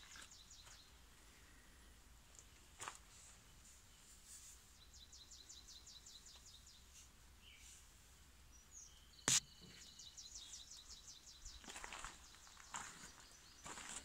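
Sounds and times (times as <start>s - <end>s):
bird chirping trill: 4.8s - 7.7s, 8.5s - 13.9s.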